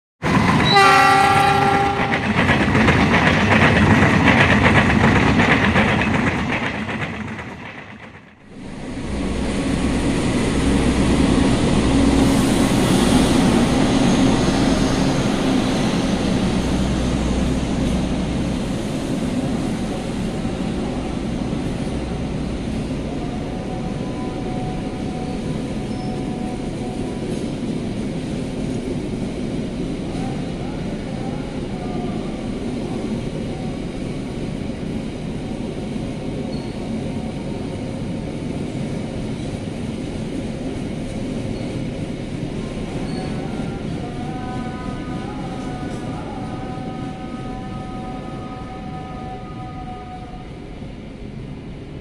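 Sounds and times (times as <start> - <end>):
diesel locomotive rolling past: 0.2 - 52.0
rumble of engine and wheels on rail: 0.2 - 52.0
locomotive horn blast: 0.6 - 2.2, 43.4 - 50.6.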